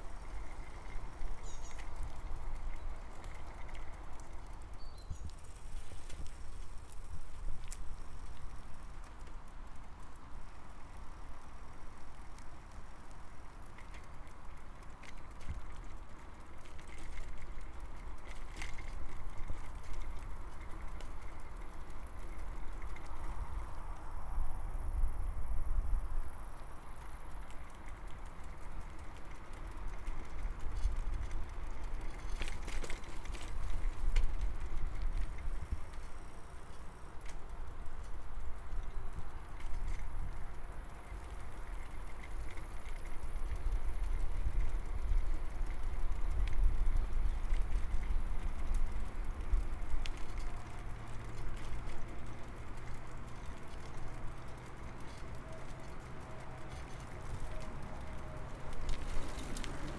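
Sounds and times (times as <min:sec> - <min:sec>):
wind and rolling tyres rumble: 0:00.0 - 0:59.9
small rattling clicks: 0:27.0 - 0:59.9.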